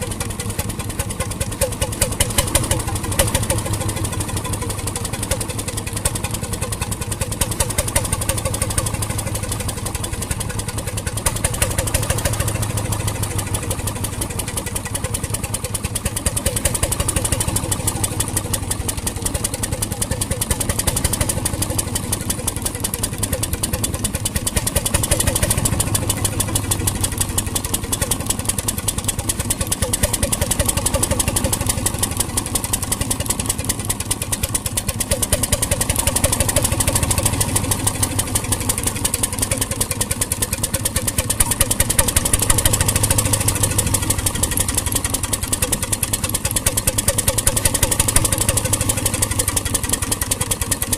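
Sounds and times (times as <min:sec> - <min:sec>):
marine engine running: 0:00.0 - 0:50.9.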